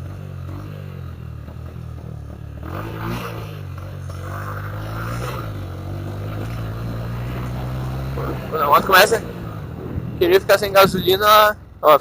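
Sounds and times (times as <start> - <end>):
small motorcycle engine sputtering: 0.0 - 12.0
wind noise: 9.7 - 11.6.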